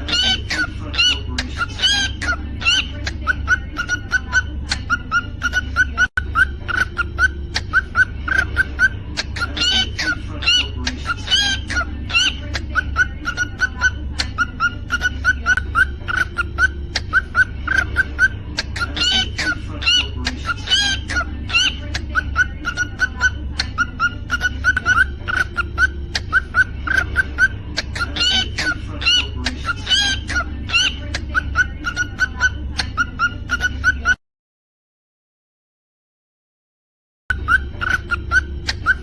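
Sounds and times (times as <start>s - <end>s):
cockatiel whistling: 3.5s - 21.8s, 37.3s - 39.0s.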